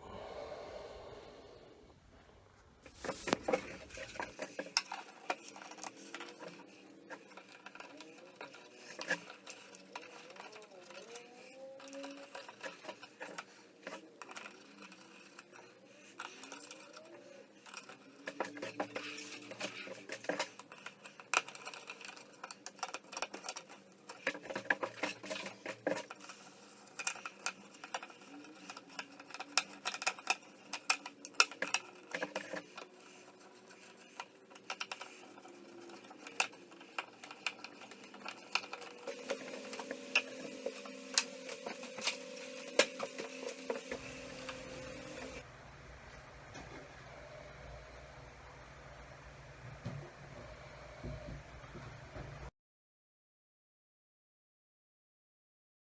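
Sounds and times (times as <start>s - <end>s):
steady low hum: 0.0s - 4.6s.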